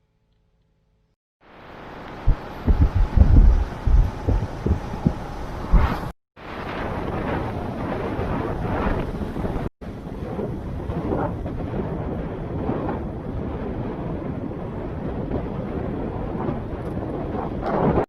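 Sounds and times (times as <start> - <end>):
wind buffeting microphone: 2.1 - 18.0.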